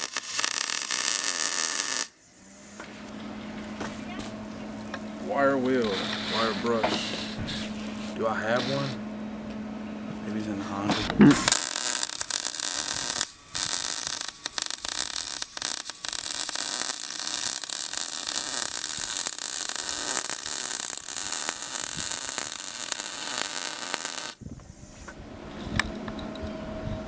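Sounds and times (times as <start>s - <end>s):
welding arc crackling and hissing: 0.0s - 2.1s, 8.3s - 9.0s, 10.9s - 24.4s.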